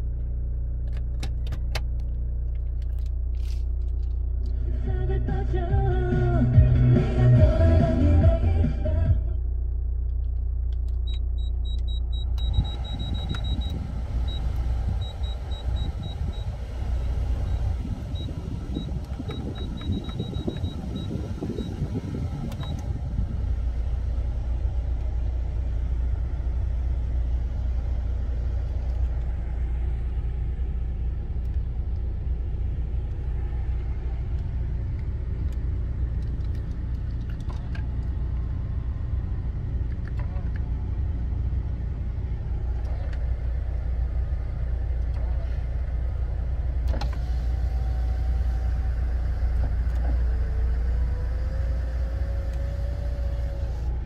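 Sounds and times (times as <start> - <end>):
diesel engine idling: 0.0 - 54.0
short high beeps: 11.1 - 14.4.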